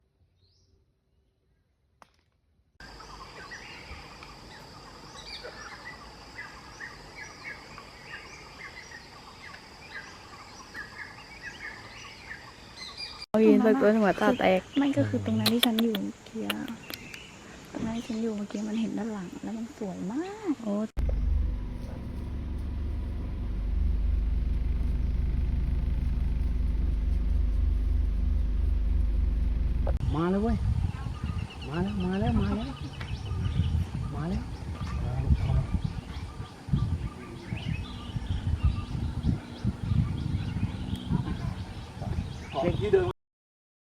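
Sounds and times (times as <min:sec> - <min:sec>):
birds chirping chorus: 0:02.8 - 0:22.0, 0:30.0 - 0:43.1
high-pitched whine: 0:21.0 - 0:30.0
engine running low drone: 0:21.0 - 0:30.1.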